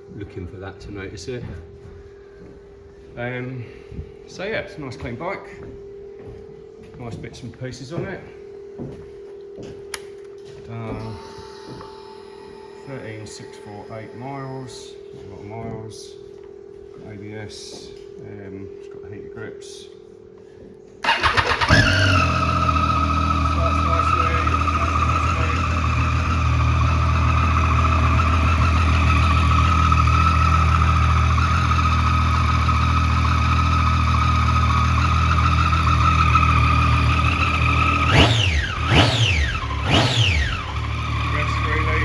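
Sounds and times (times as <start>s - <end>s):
motorcycle engine idling and revving: 21.0s - 42.0s.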